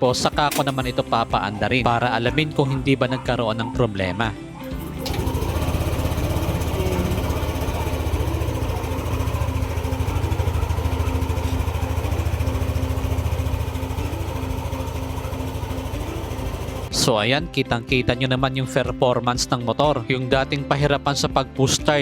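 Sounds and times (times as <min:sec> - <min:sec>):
scooter engine idling: 0:04.7 - 0:16.9.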